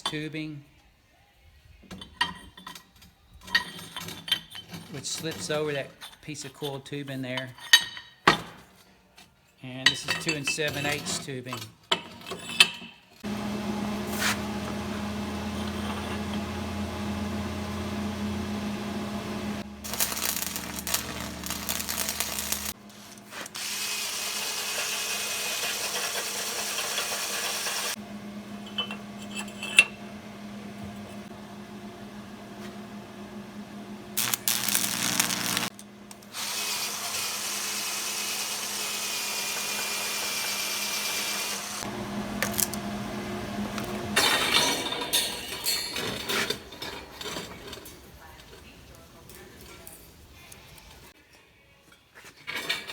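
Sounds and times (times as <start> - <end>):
power tool motor running: 13.2 - 31.4, 34.0 - 44.2
high hissing grind: 19.8 - 22.8, 34.2 - 35.7.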